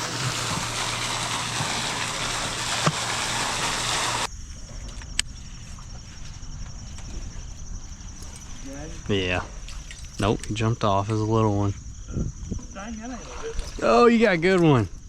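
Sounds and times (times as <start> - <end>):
boat motor running: 0.0 - 4.3
high insect trill: 0.0 - 15.0.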